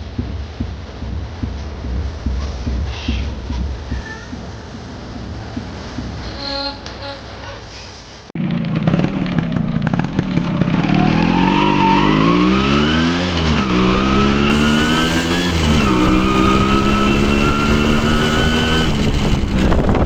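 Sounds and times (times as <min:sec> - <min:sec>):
motorcycle engine revving through gears: 0:08.4 - 0:20.0.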